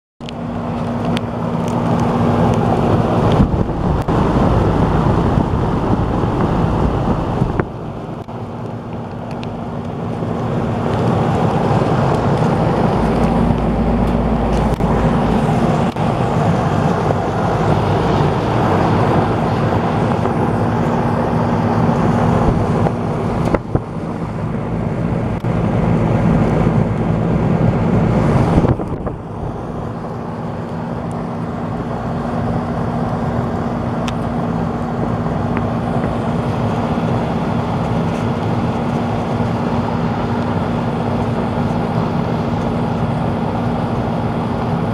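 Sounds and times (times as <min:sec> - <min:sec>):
heat pump fan running: 0:00.2 - 0:44.9.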